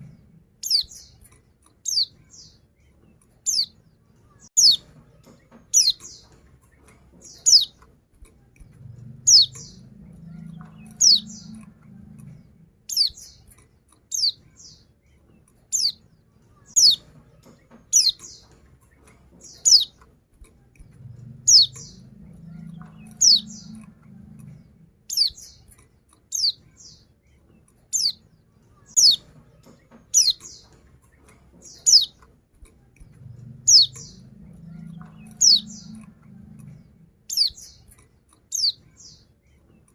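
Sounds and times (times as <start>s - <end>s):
bird high chirps: 0.0s - 1.2s, 1.8s - 6.4s, 7.2s - 7.8s, 8.9s - 13.5s, 14.1s - 14.9s, 15.7s - 18.6s, 19.4s - 20.0s, 20.8s - 25.7s, 26.3s - 27.1s, 27.9s - 30.8s, 31.6s - 32.2s, 33.1s - 37.9s, 38.5s - 39.3s.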